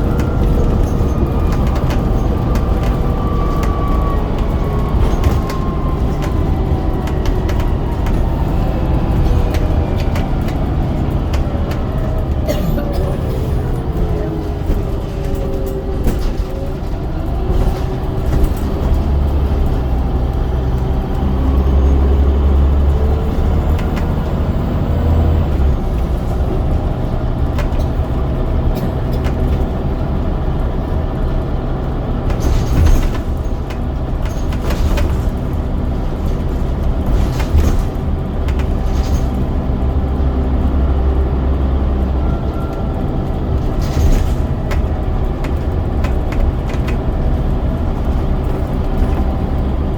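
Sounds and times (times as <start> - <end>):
bus diesel engine rumbling: 0.0 - 49.9
sharp knocks and rattles: 32.2 - 40.4.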